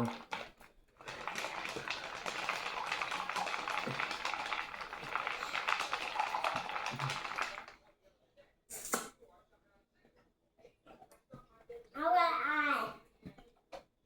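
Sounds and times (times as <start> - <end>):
eating crunches and crackles: 0.0 - 7.8.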